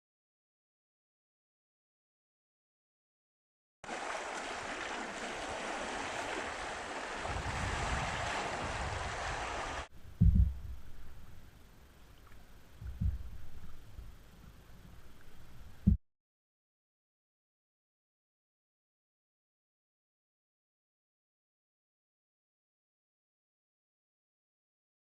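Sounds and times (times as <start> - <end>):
rushing water: 3.8 - 16.0
wind buffeting microphone: 4.8 - 10.9.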